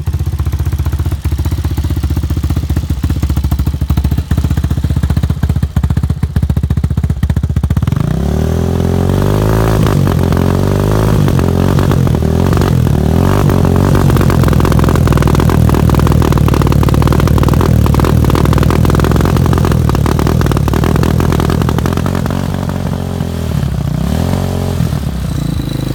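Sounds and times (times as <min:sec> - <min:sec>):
motorcycle engine revving: 0:00.0 - 0:25.9.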